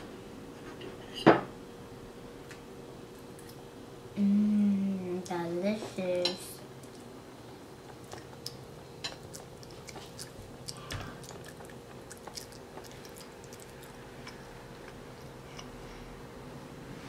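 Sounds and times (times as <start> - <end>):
faint steady hum: 0.0 - 17.0
child chewing: 6.8 - 16.1.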